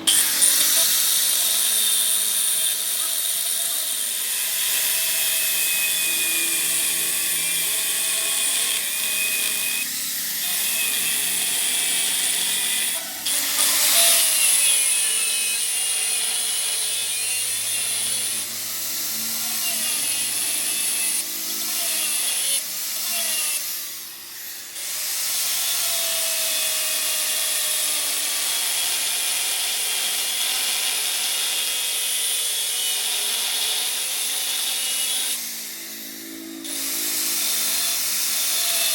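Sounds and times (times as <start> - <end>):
machine tool high-pitched whine: 0.0 - 38.9.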